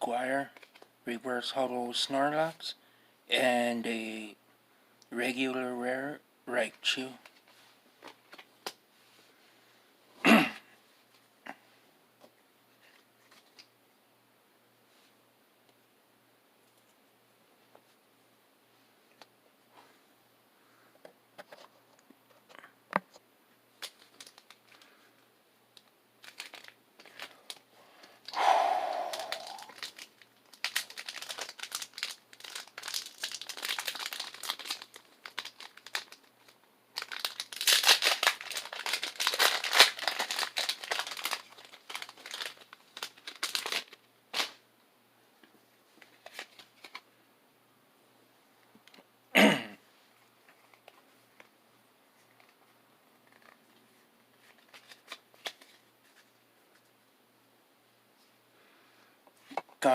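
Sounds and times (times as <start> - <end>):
foil wrapper tearing: 23.8 - 24.8, 26.2 - 27.6, 29.2 - 44.6
foil wrapper crinkling: 23.8 - 25.0, 26.2 - 28.2, 29.2 - 44.6, 46.0 - 47.0, 54.4 - 56.3.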